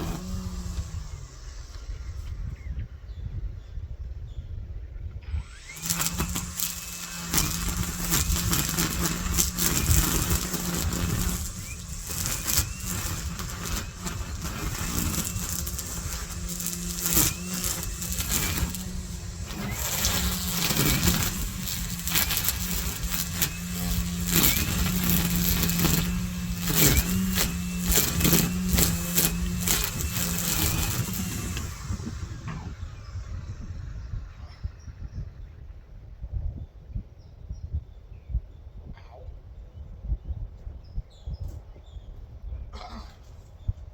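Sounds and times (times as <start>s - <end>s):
string trimmer running: 0.0s - 2.7s, 5.3s - 34.8s.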